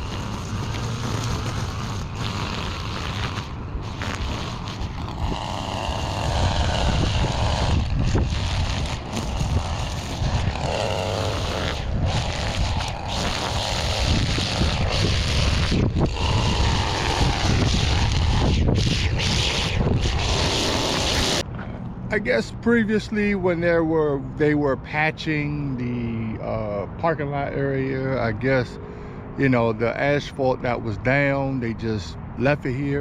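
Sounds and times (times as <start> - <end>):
wind buffeting microphone: 0.0 - 21.5.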